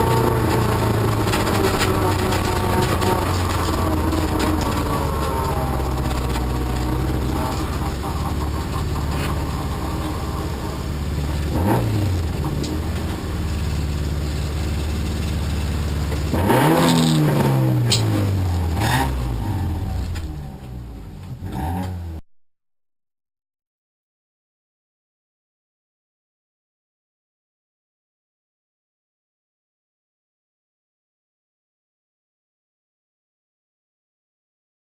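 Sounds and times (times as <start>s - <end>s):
racing car engine under load: 0.0s - 22.2s.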